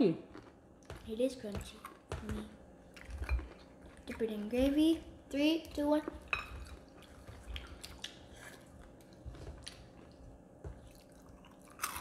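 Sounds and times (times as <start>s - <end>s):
chewing crispy fried chicken: 0.3s - 2.0s, 5.8s - 12.0s.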